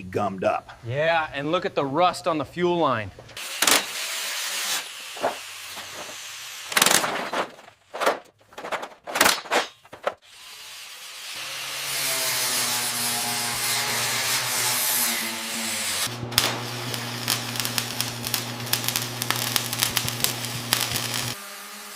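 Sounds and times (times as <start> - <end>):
power tool humming: 10.3 - 21.9.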